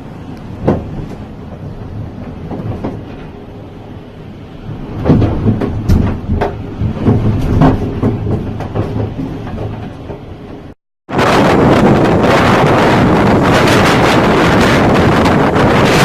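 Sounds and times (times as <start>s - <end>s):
gale wind buffeting microphone: 0.0s - 16.0s
knocks and rattles: 0.6s - 3.5s, 4.6s - 12.6s.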